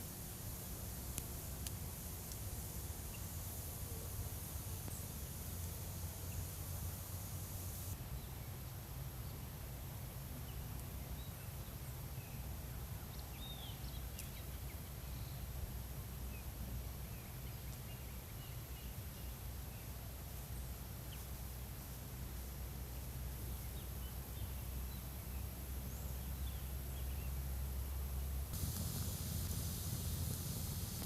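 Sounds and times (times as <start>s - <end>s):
steady low rumble: 28.5s - 31.0s.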